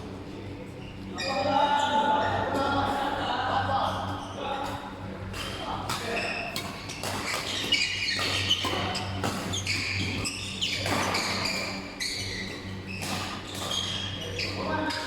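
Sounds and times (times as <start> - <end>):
sneakers squeaking on court: 5.4 - 15.0.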